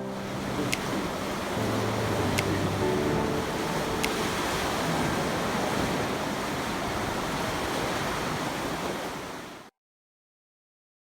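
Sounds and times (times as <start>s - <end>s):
sea surf washing: 0.0s - 9.7s.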